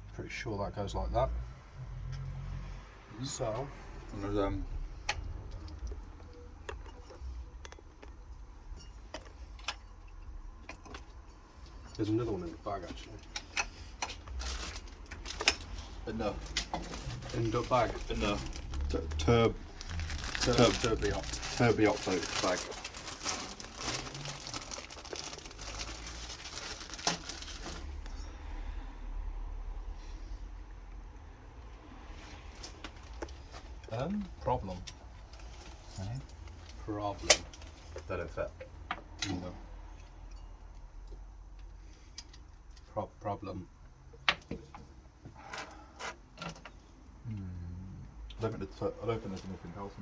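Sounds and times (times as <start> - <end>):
plastic bag crinkling: 14.4 - 28.2.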